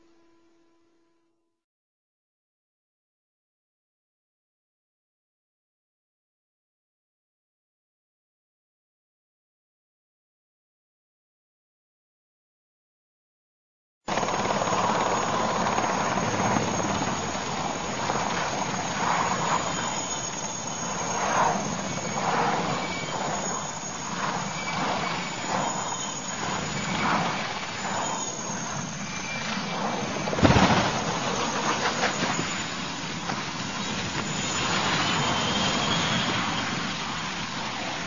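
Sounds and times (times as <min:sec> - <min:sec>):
aircraft engine running: 0:14.1 - 0:38.0
loud burst: 0:30.0 - 0:36.8.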